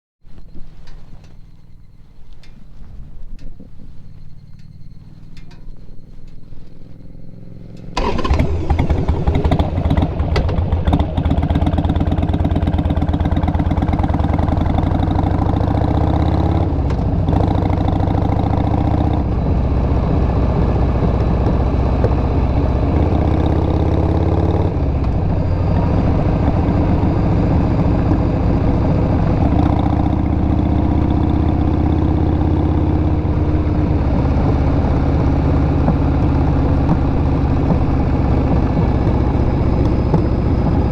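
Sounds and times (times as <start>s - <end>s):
motorcycle engine starting and running: 0.4s - 40.9s.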